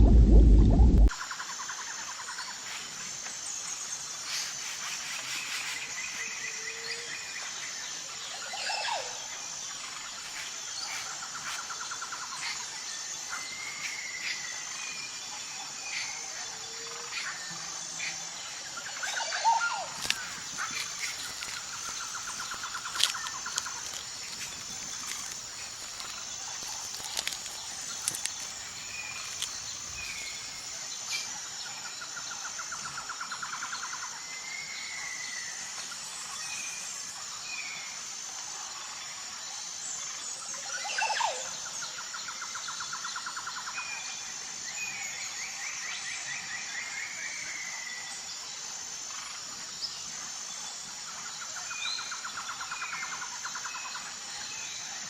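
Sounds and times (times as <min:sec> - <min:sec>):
high insect buzz: 0:18.8 - 0:31.4
trilled bird calls: 0:19.0 - 0:30.8.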